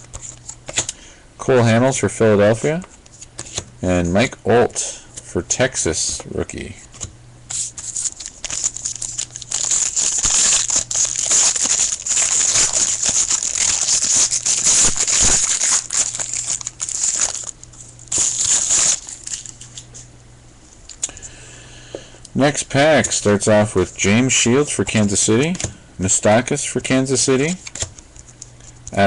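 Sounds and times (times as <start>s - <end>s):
foil wrapper crinkling: 7.5s - 20.0s.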